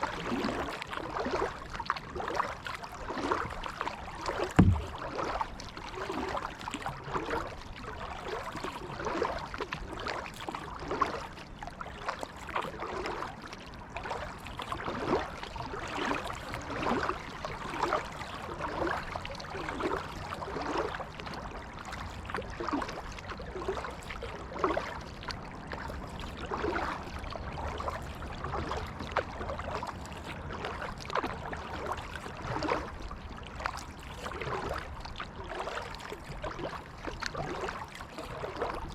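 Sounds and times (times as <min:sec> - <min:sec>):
paddle splashing in water: 0:00.0 - 0:38.9
water dripping and trickling: 0:04.6 - 0:05.2.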